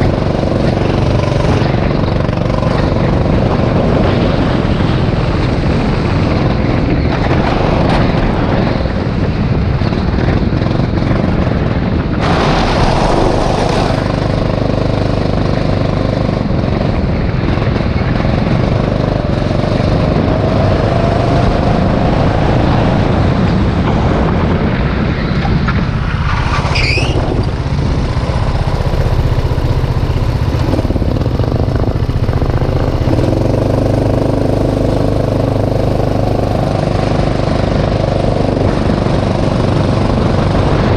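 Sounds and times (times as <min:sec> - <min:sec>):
go-kart engine revving: 0:10.3 - 0:23.8, 0:26.2 - 0:40.9
brief high squeal: 0:26.7 - 0:27.4.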